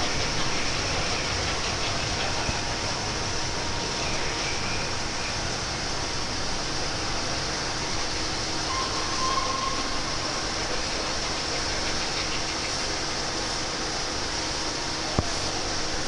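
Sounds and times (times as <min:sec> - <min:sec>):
train wheels on rails: 0:00.0 - 0:16.0
wheel squeal: 0:08.5 - 0:10.8.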